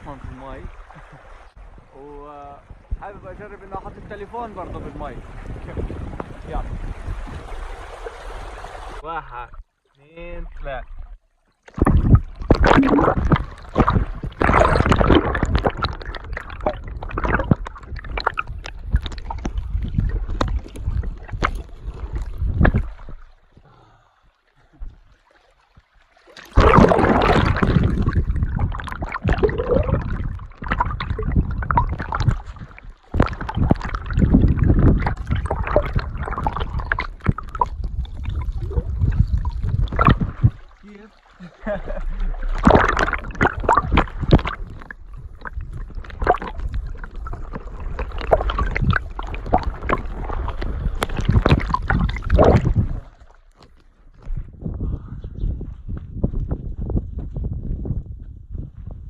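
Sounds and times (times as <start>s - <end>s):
underwater rushing water: 0.0s - 23.6s, 24.6s - 53.8s.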